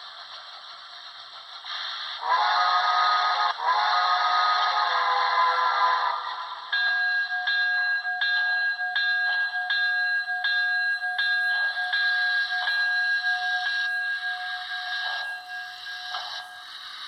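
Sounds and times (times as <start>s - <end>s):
model locomotive bell ringing: 6.5s - 17.0s.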